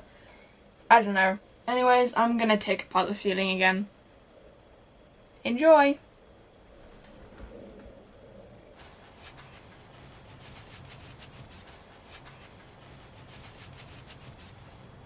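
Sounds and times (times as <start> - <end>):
faint scraping and rubbing: 6.7 - 15.0.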